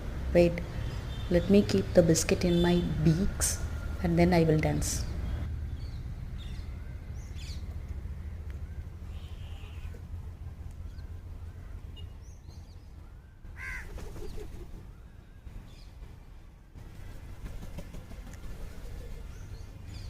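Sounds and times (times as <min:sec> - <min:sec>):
low background rumble: 0:00.0 - 0:20.0
crow cawing: 0:13.6 - 0:13.9.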